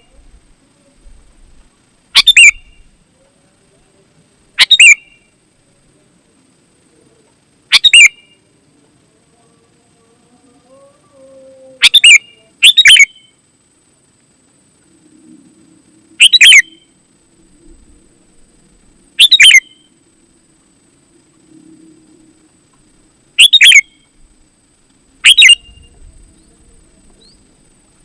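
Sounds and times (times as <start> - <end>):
bulbul calling: 2.1 - 2.9, 4.6 - 5.3, 7.7 - 8.4, 11.8 - 13.3, 16.2 - 16.9, 19.2 - 20.0, 23.4 - 24.1, 25.2 - 27.6.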